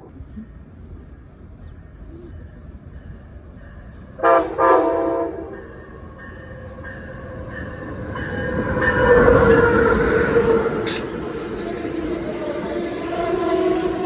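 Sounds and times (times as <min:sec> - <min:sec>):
train rumble: 0:00.0 - 0:14.0
locomotive horn blasts: 0:04.2 - 0:05.7, 0:13.0 - 0:14.0.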